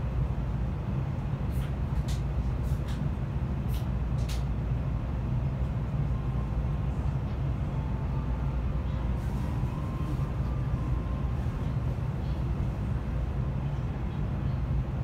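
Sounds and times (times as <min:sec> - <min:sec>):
train cabin low rumble: 0:00.0 - 0:15.0.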